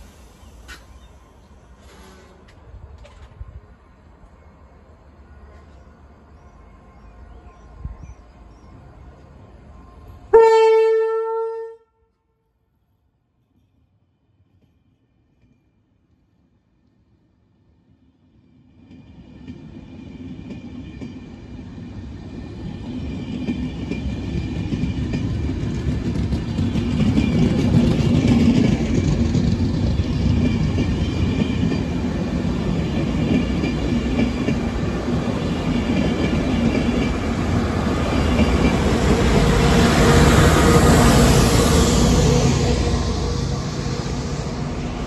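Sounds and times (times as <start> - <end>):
diesel locomotive engine: 0.0 - 11.8, 18.3 - 45.0
train wheels clattering: 22.9 - 45.0.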